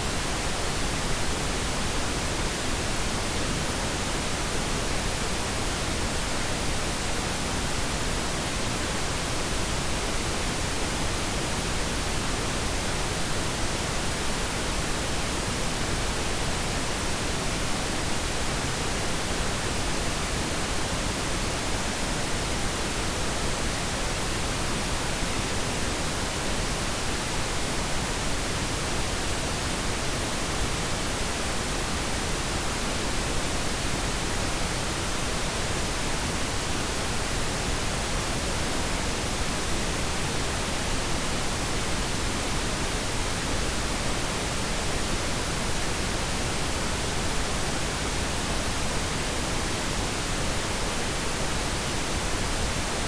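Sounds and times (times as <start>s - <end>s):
pink noise hiss: 0.0s - 53.0s.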